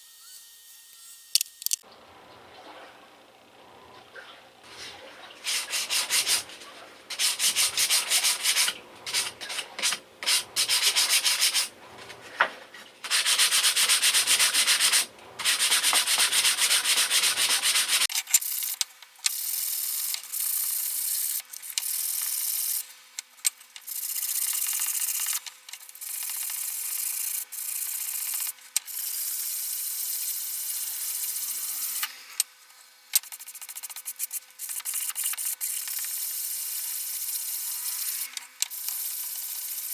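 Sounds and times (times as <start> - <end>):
low background hum: 1.9 - 18.0
sandpaper rubbing strokes: 4.6 - 18.1, 33.3 - 35.8.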